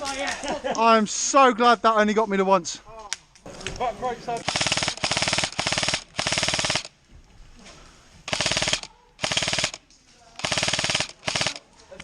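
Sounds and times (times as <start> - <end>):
airsoft gun full-auto bursts: 4.4 - 6.9, 8.3 - 9.8, 10.4 - 11.6.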